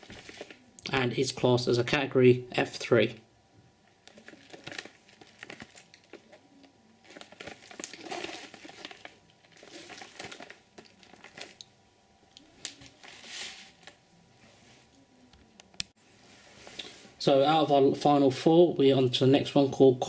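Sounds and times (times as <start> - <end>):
packaging crinkling and rustling: 0.0 - 0.7, 4.0 - 11.7, 12.4 - 14.0.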